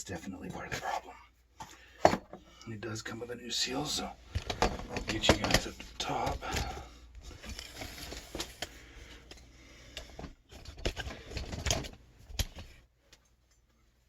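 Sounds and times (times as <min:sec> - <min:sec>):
hard objects clicking and scraping: 0:04.2 - 0:13.3.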